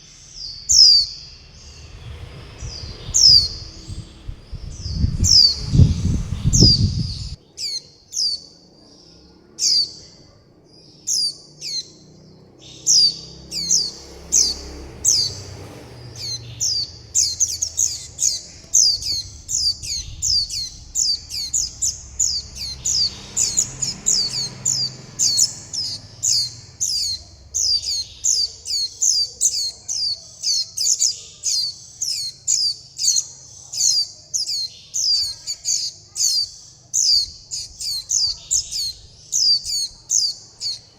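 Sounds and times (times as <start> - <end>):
bird high chirps: 0.0 - 40.9.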